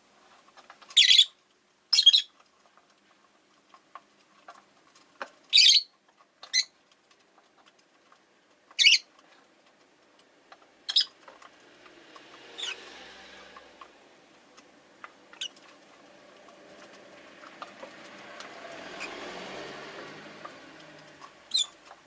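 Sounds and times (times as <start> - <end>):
lovebirds chirping: 0.9 - 2.4, 5.5 - 6.8, 8.7 - 9.1, 10.8 - 11.2, 12.6 - 12.8, 15.3 - 15.7, 21.0 - 22.0
faint clicks and taps: 2.4 - 12.5, 13.4 - 18.9, 20.0 - 22.0.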